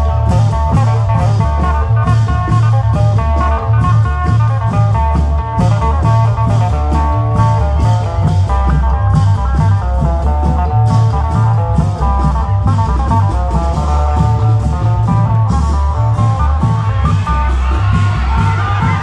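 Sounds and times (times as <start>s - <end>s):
amplified drum band music: 0.0s - 19.0s
fast plucked-string melody: 0.0s - 19.0s
heavy pulsing bass: 0.0s - 19.0s
steady drum beats: 0.0s - 19.0s.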